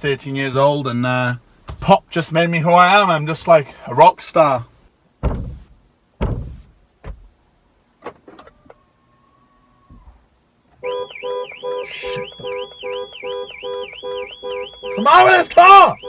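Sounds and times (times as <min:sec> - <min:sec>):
knocks: 0:05.2 - 0:07.2
short steady tone: 0:10.8 - 0:15.2
car alarm warbling siren: 0:10.8 - 0:16.0.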